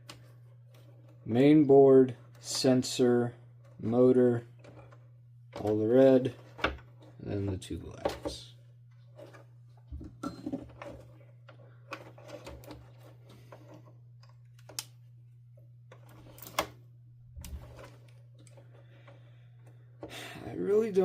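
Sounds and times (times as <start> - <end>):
hands clicking plastic parts: 14.2 - 15.0.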